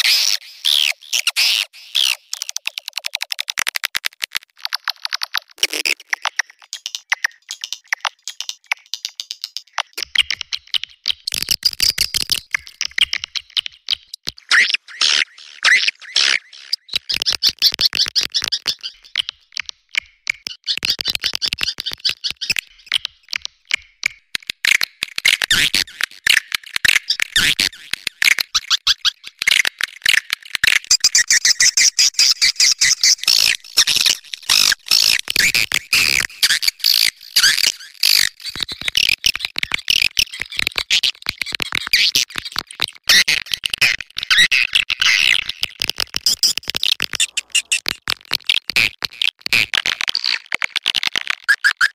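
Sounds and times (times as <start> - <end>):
swiftlet chattering chirps and clicks: 46.0 - 48.6.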